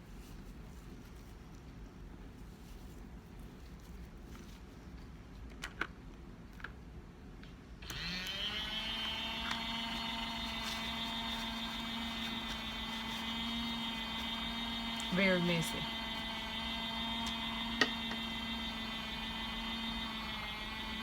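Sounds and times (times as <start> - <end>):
small electric motor humming: 7.8 - 21.0.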